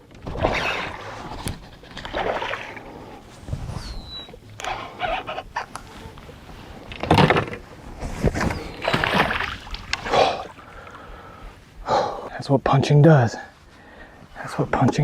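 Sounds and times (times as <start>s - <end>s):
water splashing: 0.3s - 3.2s, 8.2s - 11.4s.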